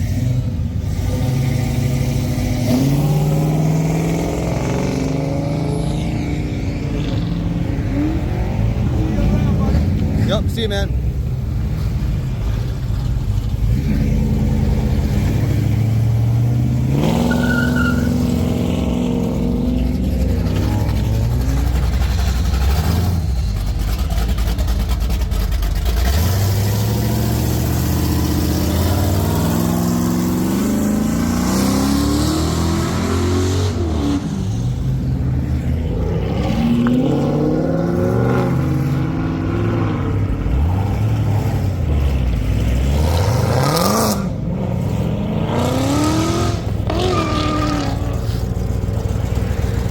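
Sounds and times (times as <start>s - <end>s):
car engines revving: 0.0s - 49.9s.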